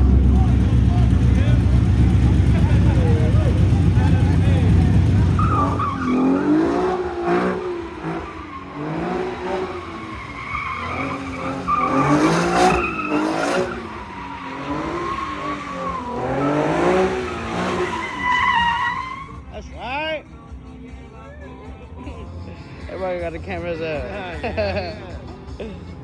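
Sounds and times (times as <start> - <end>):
car engine revving: 0.0 - 19.6
tyres squealing: 0.5 - 19.5.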